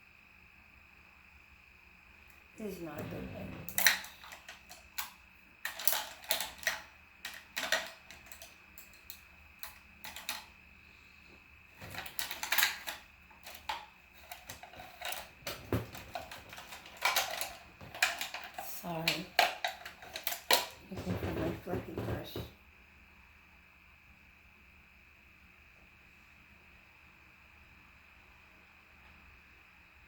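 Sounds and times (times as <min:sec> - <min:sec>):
brushes and plastic clattering: 0:02.6 - 0:10.5, 0:11.8 - 0:22.5.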